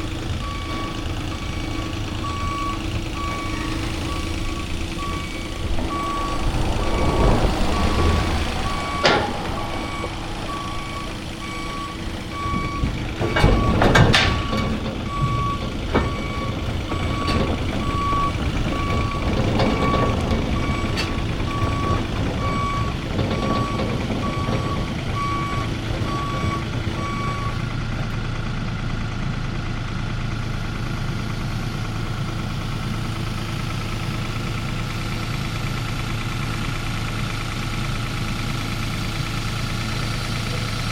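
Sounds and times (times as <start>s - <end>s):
diesel engine running: 0.0s - 40.9s
reversing alarm beeping: 0.3s - 27.8s
metal clanks: 2.2s - 27.7s.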